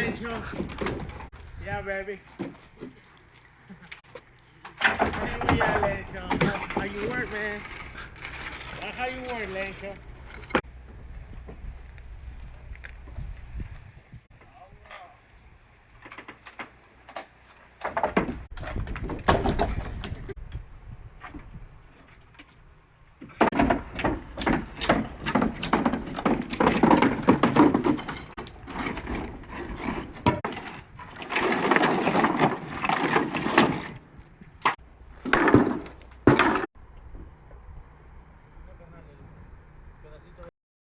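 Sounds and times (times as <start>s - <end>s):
wooden boards struck and clattering: 0.0s - 1.4s, 4.7s - 10.7s, 16.0s - 20.4s, 23.2s - 34.0s, 34.6s - 36.7s.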